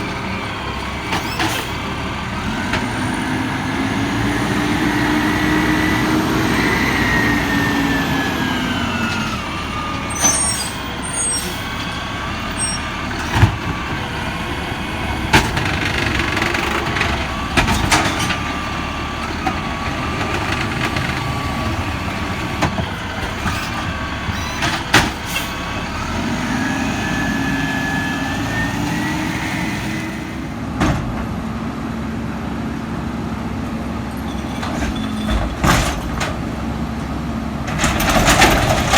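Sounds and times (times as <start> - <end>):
garbage truck engine running: 0.0 - 38.9.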